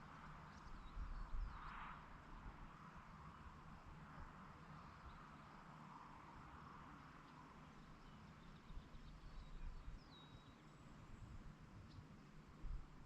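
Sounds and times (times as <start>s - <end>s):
faint bird chirps: 7.9s - 10.7s.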